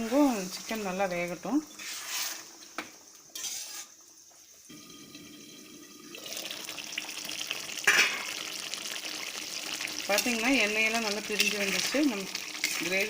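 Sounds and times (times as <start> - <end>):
gravy bubbling and sizzling: 0.0 - 13.0.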